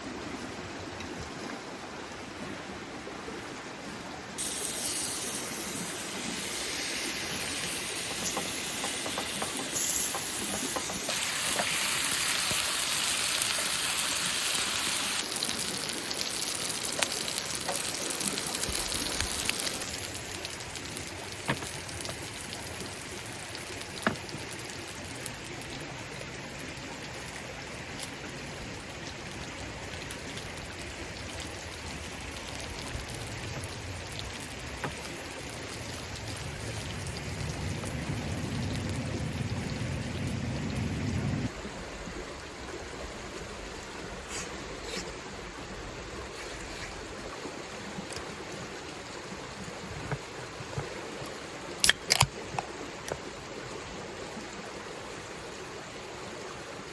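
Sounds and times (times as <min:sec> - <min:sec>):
rushing water: 0:00.0 - 0:56.9
low rumble: 0:36.1 - 0:41.9.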